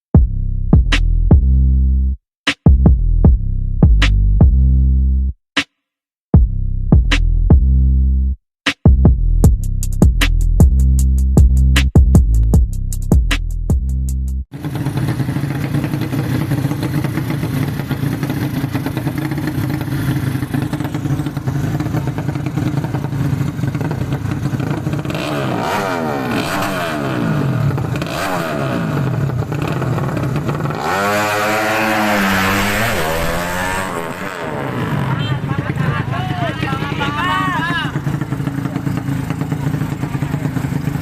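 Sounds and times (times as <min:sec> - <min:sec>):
motorcycle engines revving: 0:14.6 - 0:41.0.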